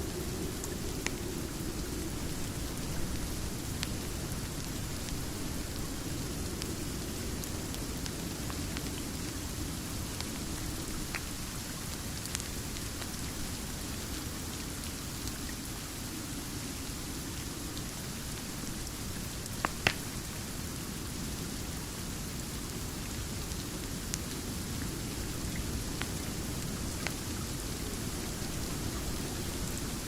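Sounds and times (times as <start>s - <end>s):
steady rain: 0.0s - 30.0s
wood fire crackling and popping: 19.4s - 20.2s.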